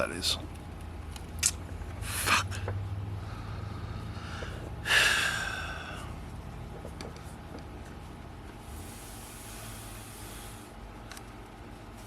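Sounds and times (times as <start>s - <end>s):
man sighing: 4.4s - 6.1s.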